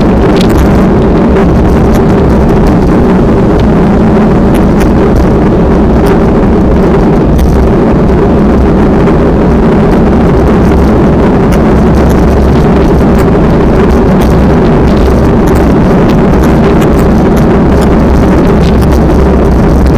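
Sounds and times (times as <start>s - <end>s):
low hum: 0.0s - 19.9s
strong wind on microphone: 0.0s - 19.9s.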